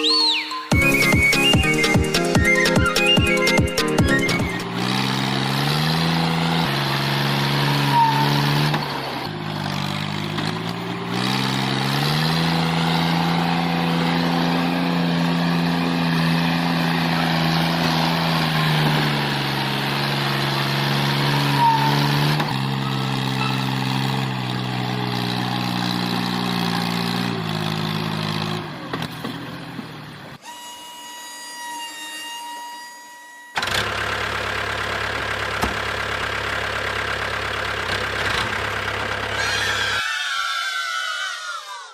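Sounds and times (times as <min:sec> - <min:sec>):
small tractor motor humming: 0:00.0 - 0:40.2
thin high whine: 0:30.4 - 0:33.6.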